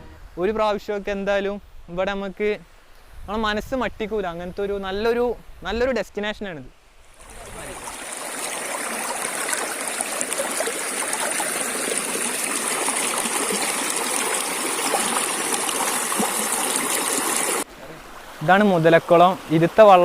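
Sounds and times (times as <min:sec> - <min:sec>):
waterfall rushing and splashing: 0:07.2 - 0:20.0.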